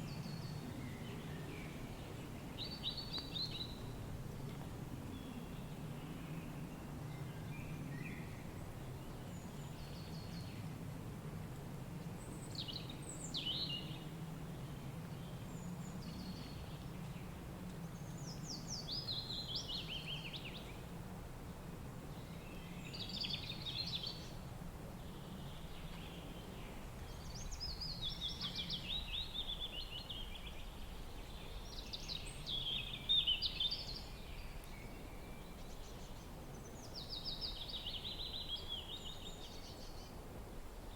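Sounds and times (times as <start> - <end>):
birds singing: 25.0 - 40.2.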